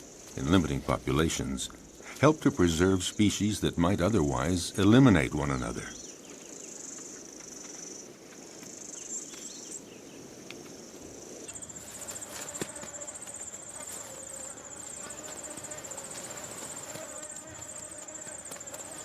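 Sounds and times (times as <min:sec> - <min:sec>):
insects buzzing: 0:00.0 - 0:19.0
pulsing high insect trill: 0:10.7 - 0:19.0.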